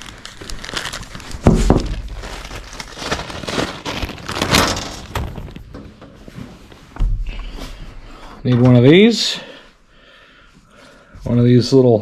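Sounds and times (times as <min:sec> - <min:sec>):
plastic parts rustling and crinkling: 0:00.0 - 0:09.1.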